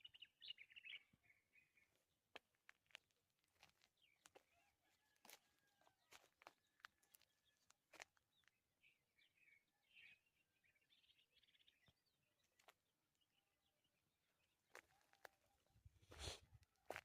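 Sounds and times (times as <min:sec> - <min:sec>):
birds chirping: 0:00.0 - 0:02.1.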